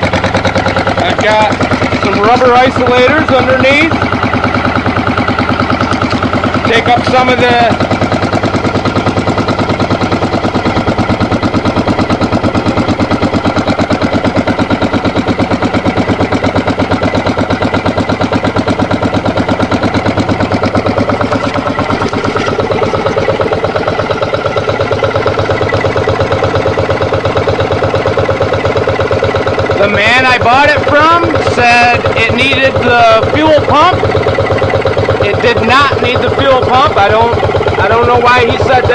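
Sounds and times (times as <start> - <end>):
diesel engine chugging: 0.0 - 38.9.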